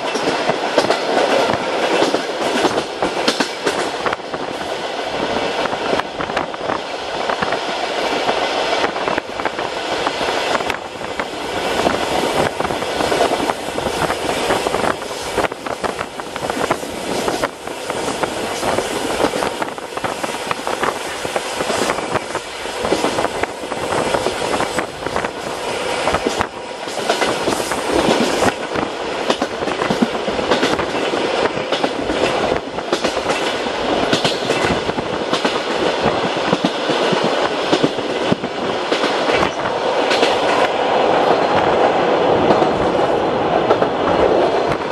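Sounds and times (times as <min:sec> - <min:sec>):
train rumble and hiss: 0:00.0 - 0:44.9
wheels clicking over rails: 0:05.6 - 0:40.8.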